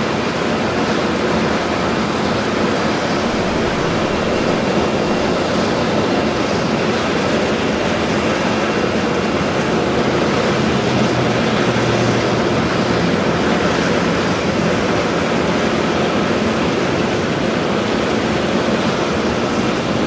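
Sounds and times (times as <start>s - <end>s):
train rushing along rails: 0.0s - 20.0s.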